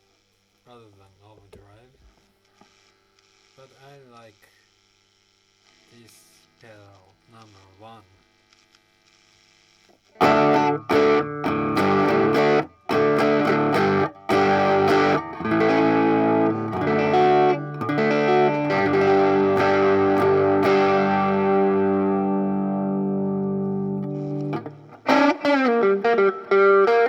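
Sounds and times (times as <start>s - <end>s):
faint amp hum: 0.0s - 27.0s
overdriven electric guitar chords: 10.2s - 27.0s.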